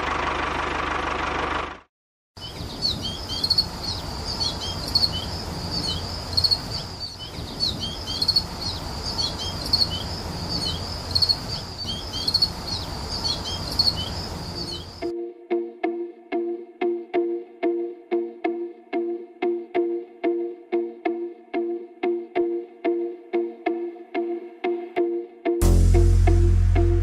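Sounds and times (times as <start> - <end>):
bird singing: 2.4 - 15.1
low steady rumble: 25.6 - 27.0.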